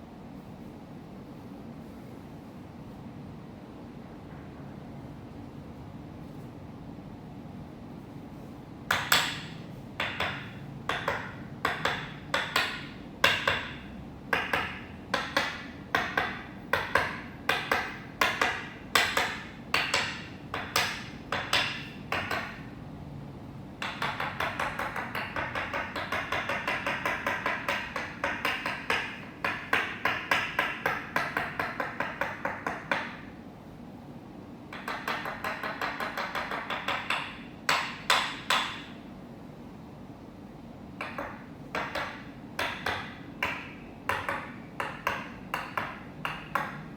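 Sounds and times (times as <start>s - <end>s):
wooden mallet striking wooden peg: 8.9s - 22.7s, 23.8s - 33.3s, 34.7s - 39.0s, 41.0s - 46.9s.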